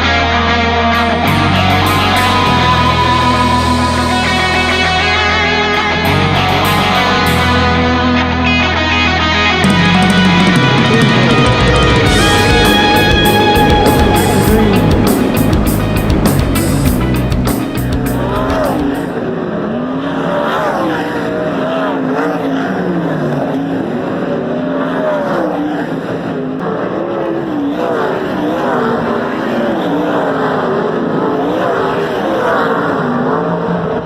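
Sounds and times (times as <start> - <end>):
race car engines lapping: 10.0 - 34.0.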